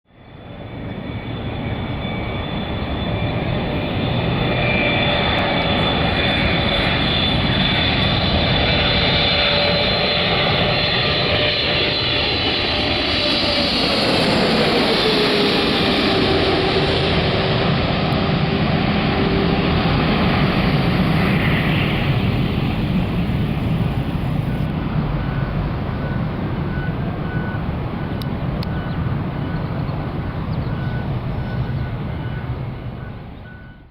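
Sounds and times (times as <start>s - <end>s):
jet airliner passing: 0.1s - 33.7s
steady tone dropping in pitch: 0.9s - 27.5s.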